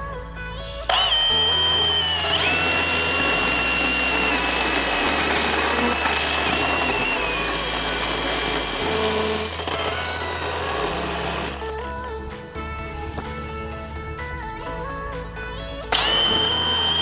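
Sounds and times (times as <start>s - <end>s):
background music with bass line: 0.0s - 17.0s
bandsaw blade whining through log: 0.9s - 11.9s, 15.9s - 17.0s.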